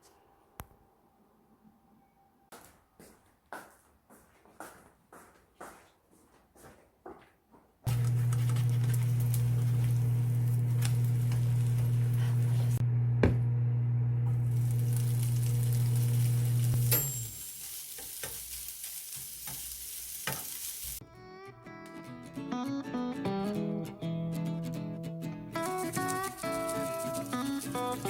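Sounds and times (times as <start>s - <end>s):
food sizzling and crackling: 7.9s - 12.8s, 14.0s - 21.0s, 25.6s - 28.0s
loud electric hum: 7.9s - 17.2s.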